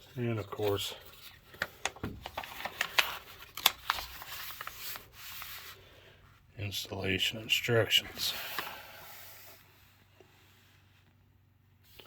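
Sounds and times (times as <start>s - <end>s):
paper rustling and crinkling: 0.2s - 5.8s.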